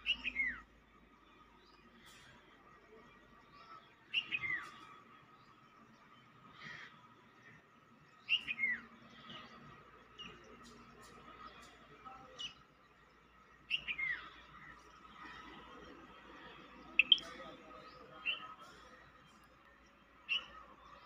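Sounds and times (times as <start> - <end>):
songbird chirping: 0.0 - 21.0.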